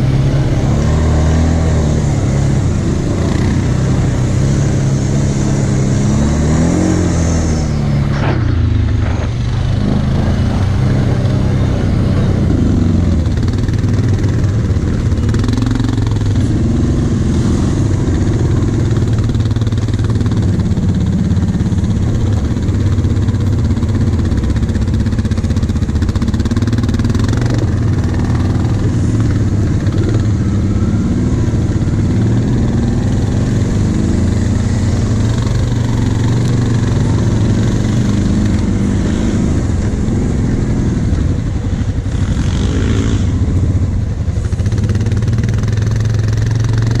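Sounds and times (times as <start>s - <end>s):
quad bike engine running: 0.0s - 47.0s.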